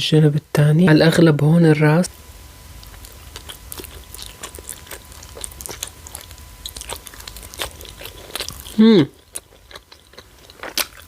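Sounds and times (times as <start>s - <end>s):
crunchy chewing: 2.7s - 11.0s.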